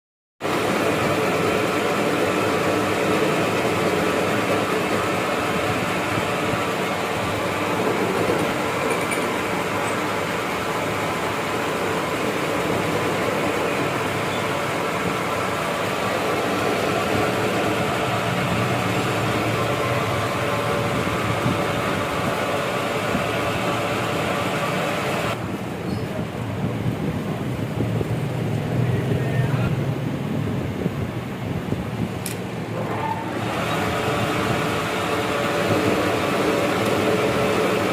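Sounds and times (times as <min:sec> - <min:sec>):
lathe running: 0:00.4 - 0:25.4, 0:32.7 - 0:37.9.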